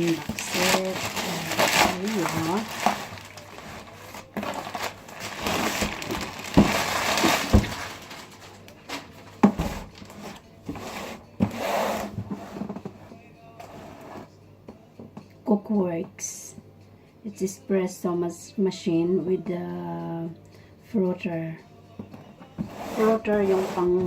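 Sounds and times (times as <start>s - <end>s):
packaging rustling and crinkling: 0.0s - 10.8s.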